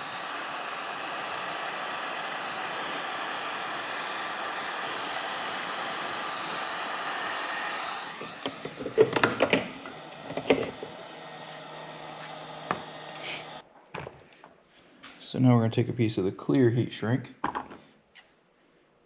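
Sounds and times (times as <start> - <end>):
heat gun blowing: 0.0 - 13.6
tools clicking and knocking: 8.4 - 9.7.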